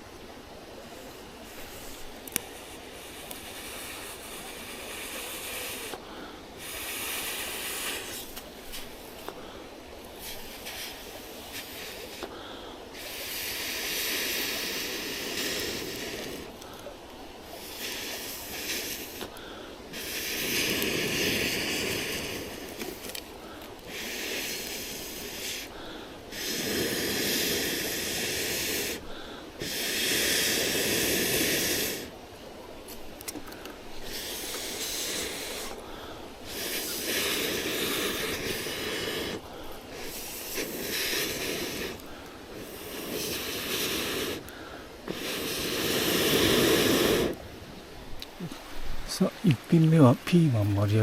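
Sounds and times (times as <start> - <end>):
person blowing on a fire: 1.4 - 6.0, 6.6 - 9.0, 10.2 - 16.7, 17.5 - 32.2, 34.0 - 47.4.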